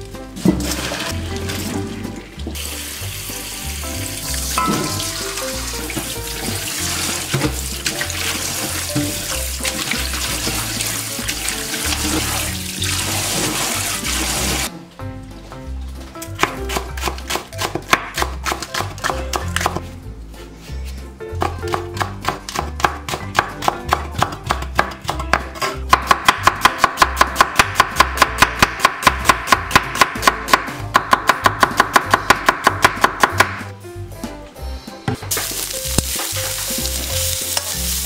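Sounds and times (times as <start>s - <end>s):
background music with bass line: 0.0s - 38.0s
tap water splashing into metal bowl: 4.2s - 13.6s
knife chopping on cutting board: 16.4s - 19.9s, 21.3s - 33.7s.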